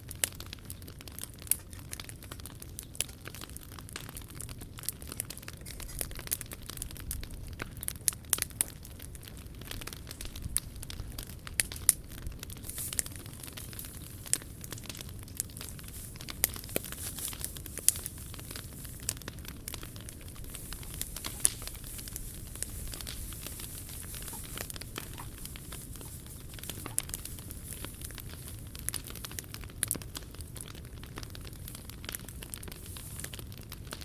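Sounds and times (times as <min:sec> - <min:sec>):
wood fire crackling in stove: 0:00.0 - 0:34.0
sharp pops: 0:12.6 - 0:29.5.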